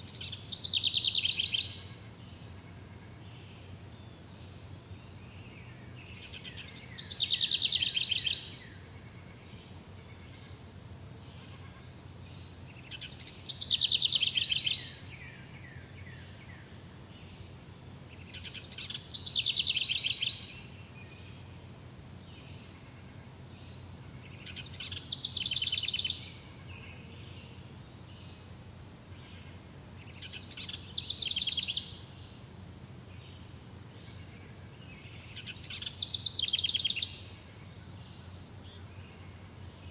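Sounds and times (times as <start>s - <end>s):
songbird trilling: 0.1s - 1.9s, 6.2s - 8.7s, 12.9s - 15.4s, 18.2s - 20.7s, 30.1s - 32.0s.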